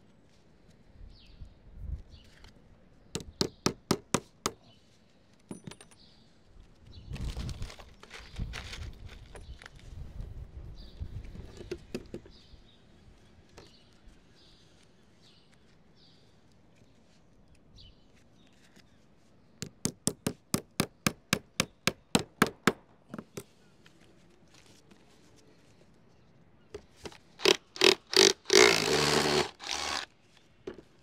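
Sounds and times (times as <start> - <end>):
light knocking and handling: 30.7 - 31.0.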